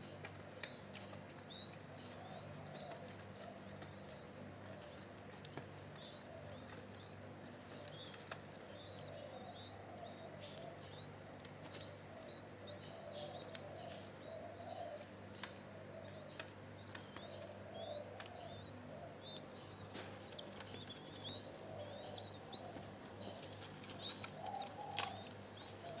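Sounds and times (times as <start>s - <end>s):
doves cooing: 0.0s - 26.0s
high bird chirps: 16.2s - 26.0s.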